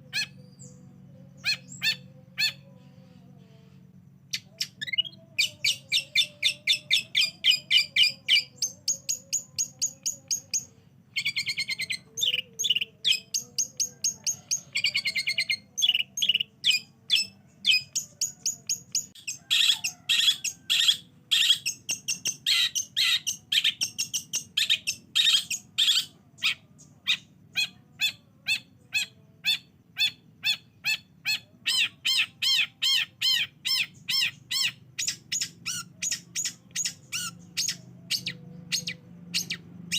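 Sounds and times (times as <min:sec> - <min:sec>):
shrike singing chatter: 0:00.0 - 0:39.9.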